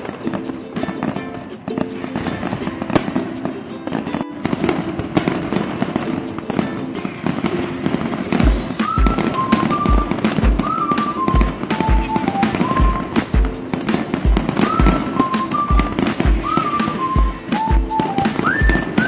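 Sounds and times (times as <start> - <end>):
background music: 0.0 - 19.0
fireworks crackling and popping: 0.0 - 19.0
deep drum beat: 8.4 - 19.0.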